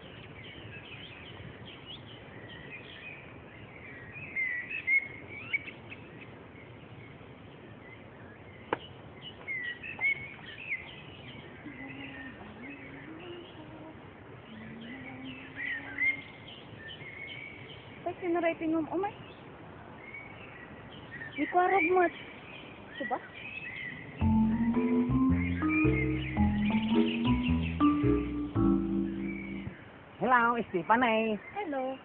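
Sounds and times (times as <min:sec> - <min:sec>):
birds chirping: 0:00.0 - 0:32.0
low steady hum: 0:24.2 - 0:29.8.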